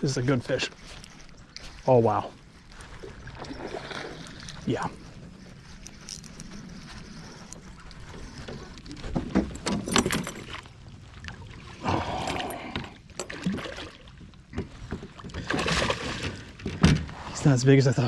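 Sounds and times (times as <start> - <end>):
water splashing: 10.4 - 16.6.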